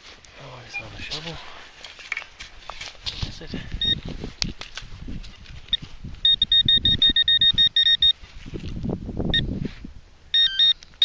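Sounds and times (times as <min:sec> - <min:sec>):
metal detector beeping: 0:00.7 - 0:01.2, 0:03.8 - 0:04.1, 0:05.7 - 0:08.2, 0:10.3 - 0:10.8.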